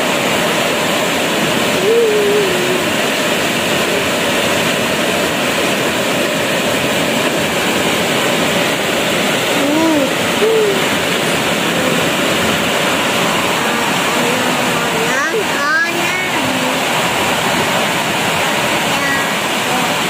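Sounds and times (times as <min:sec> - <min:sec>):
heavy rain on leaves: 0:00.0 - 0:20.0.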